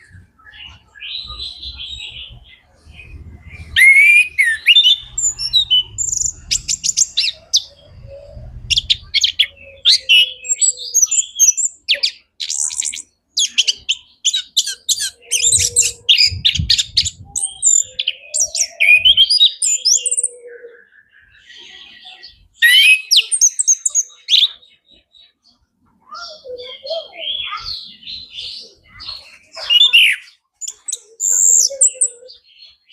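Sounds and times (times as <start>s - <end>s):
thrush singing: 0.0s - 10.6s.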